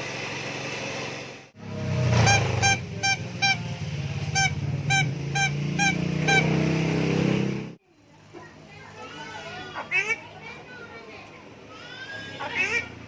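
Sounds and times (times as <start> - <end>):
starling mimicking honks: 1.6 - 7.0, 9.6 - 10.3, 11.9 - 13.0.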